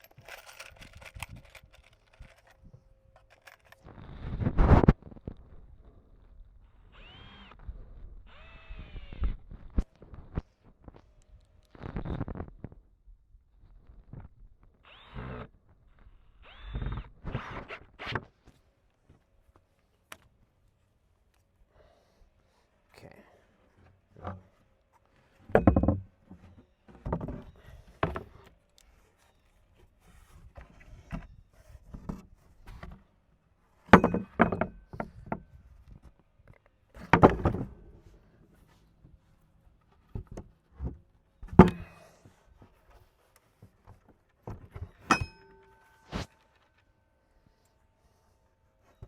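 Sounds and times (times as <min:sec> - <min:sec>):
wooden boards thudding and knocking: 0:25.5 - 0:26.4, 0:27.0 - 0:28.4, 0:33.9 - 0:35.5, 0:37.0 - 0:38.1, 0:40.1 - 0:42.0
metallic ringing knock: 0:45.1 - 0:46.0.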